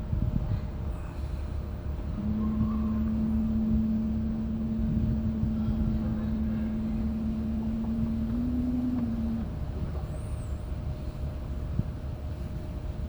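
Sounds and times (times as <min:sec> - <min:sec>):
wind and water rumble: 0:00.0 - 0:13.0
boat motor humming: 0:01.2 - 0:11.6.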